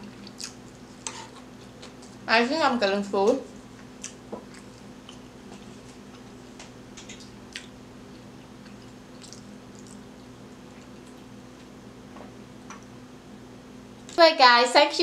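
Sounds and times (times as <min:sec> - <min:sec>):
mouth clicks of chewing: 0:08.6 - 0:10.0.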